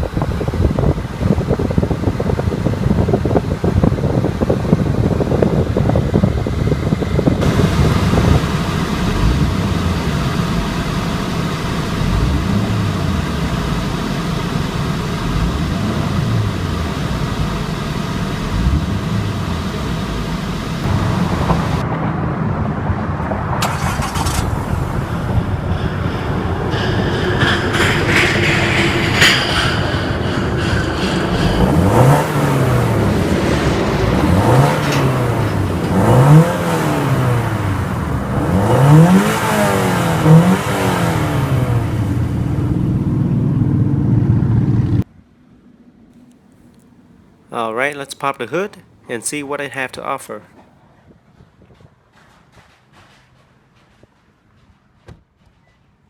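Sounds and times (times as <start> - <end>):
car engine revving: 7.4 - 21.8, 23.6 - 29.8, 30.6 - 42.5.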